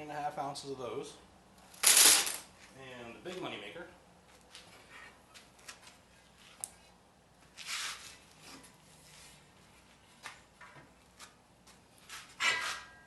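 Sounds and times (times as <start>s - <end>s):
metal scraping rustle: 12.0s - 13.0s.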